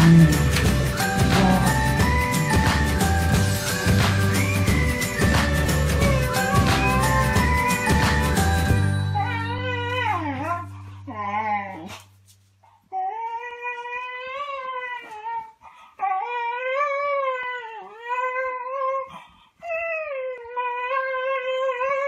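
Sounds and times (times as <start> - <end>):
dog whining and howling: 0.0 - 3.2, 3.8 - 11.9, 12.9 - 22.0.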